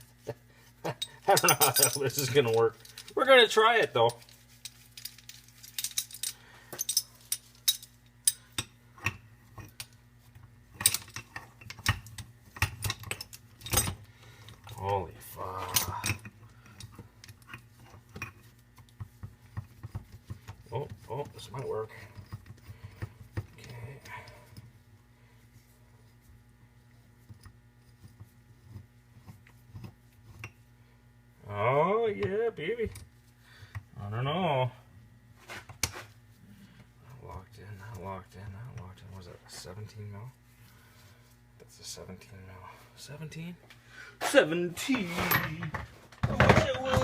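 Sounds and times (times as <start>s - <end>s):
faint steady hum: 0.0s - 47.0s
metal tool clinking and knocking: 0.9s - 3.2s.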